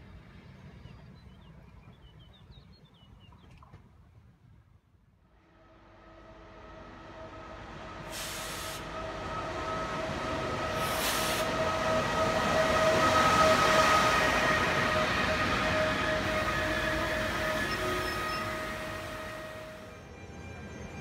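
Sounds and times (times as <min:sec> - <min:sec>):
train passing: 0:00.0 - 0:02.3, 0:05.2 - 0:21.0
train whine: 0:05.2 - 0:21.0
brief hisses: 0:08.1 - 0:08.9, 0:10.8 - 0:11.5.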